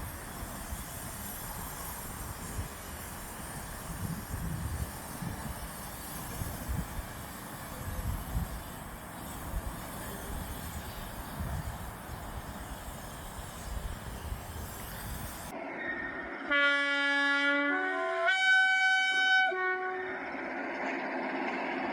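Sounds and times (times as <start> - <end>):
locomotive horn sounding notes: 15.8 - 20.3.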